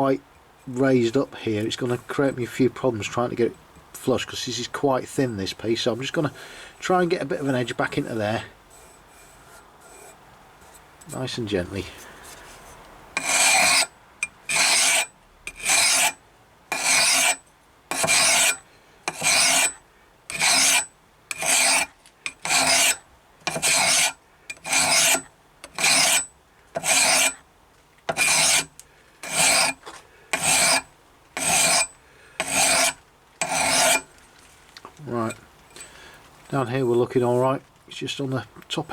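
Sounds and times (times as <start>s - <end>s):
hand file rasping on steel: 13.2s - 27.4s, 28.1s - 34.1s.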